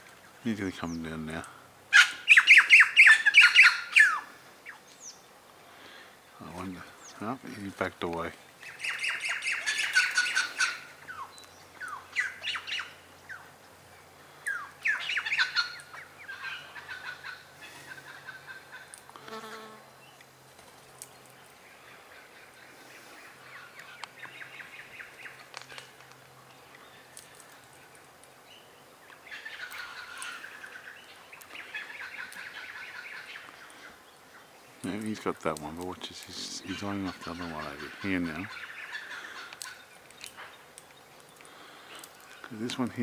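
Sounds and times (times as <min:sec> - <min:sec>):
birds chirping: 0:00.0 - 0:19.2, 0:19.8 - 0:43.0.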